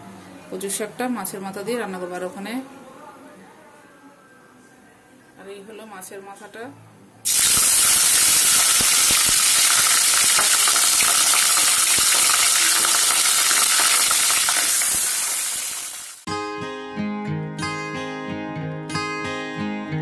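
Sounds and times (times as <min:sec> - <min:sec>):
fish head sizzling in oil: 0:07.3 - 0:16.3.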